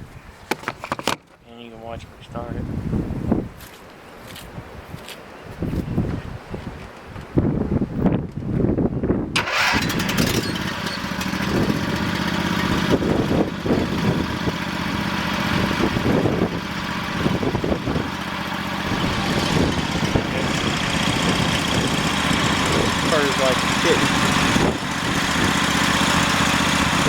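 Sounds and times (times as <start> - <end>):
electric starter cranking: 9.4 - 27.0
tractor engine running: 9.4 - 27.0.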